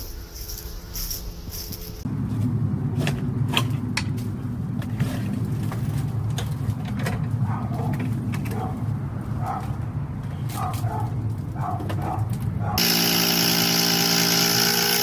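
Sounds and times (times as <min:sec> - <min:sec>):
motor humming: 0:12.8 - 0:15.0.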